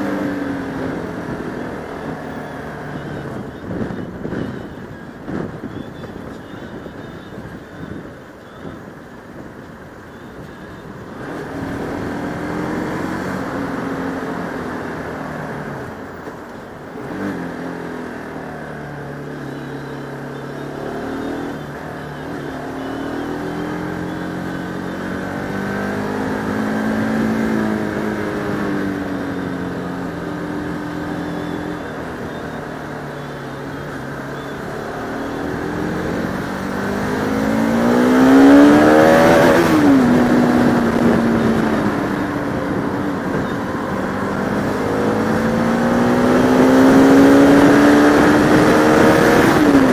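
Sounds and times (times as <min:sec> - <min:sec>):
motorcycle engine revving: 0:16.9 - 0:49.9.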